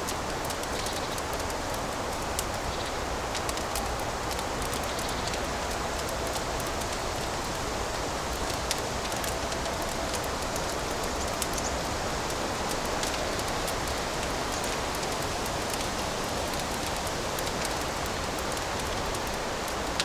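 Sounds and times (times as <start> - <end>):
fire crackling in a fireplace: 0.0 - 20.0.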